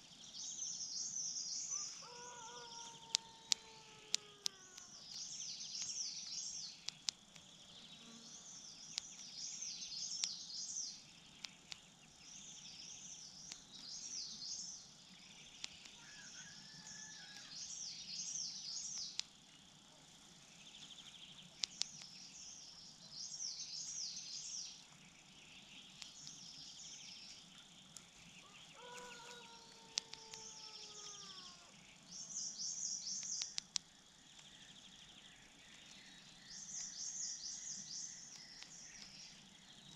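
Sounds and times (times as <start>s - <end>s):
insect drone: 0.0s - 39.9s
songbird singing: 0.0s - 39.9s
lower falling bird call: 1.7s - 6.6s, 28.2s - 31.8s
sharp clicks: 3.0s - 7.6s, 8.8s - 10.7s, 11.3s - 11.9s, 13.4s - 14.1s, 15.5s - 16.0s, 18.8s - 19.4s, 21.5s - 22.2s, 25.9s - 26.4s, 29.9s - 30.6s, 33.0s - 34.6s, 36.7s - 37.1s, 38.2s - 39.2s.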